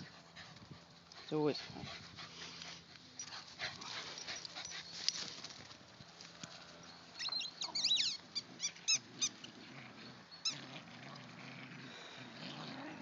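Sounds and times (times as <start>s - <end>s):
high-pitched squeaks: 7.2s - 9.4s.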